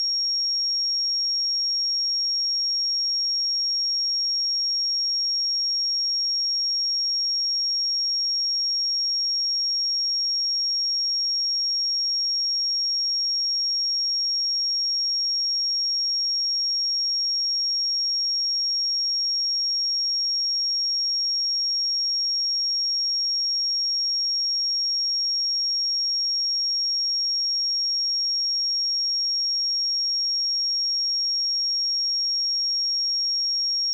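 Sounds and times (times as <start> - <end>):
high-pitched sine test tone: 32.4 - 33.9.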